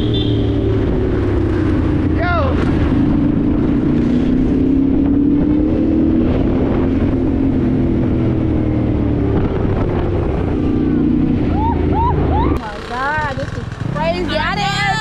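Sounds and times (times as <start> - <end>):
wind noise on microphone: 0.6 - 12.6
dirt bike engine running: 9.2 - 15.0.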